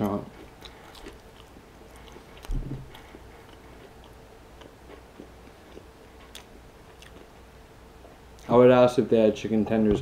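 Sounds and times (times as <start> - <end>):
quiet chewing: 0.0 - 7.3.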